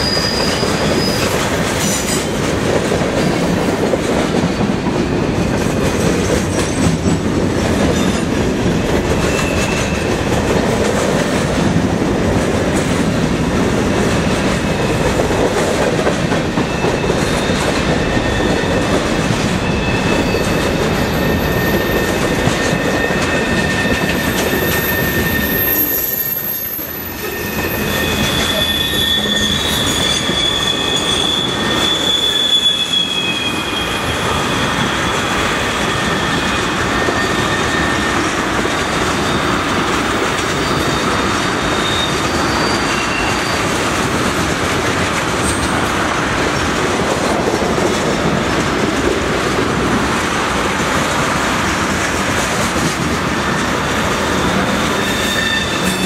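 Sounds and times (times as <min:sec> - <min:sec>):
high wheel squeals: 0:00.0 - 0:02.2, 0:07.8 - 0:10.5, 0:16.4 - 0:44.0, 0:53.4 - 0:56.0
steel wheels rolling on rail: 0:00.0 - 0:56.0.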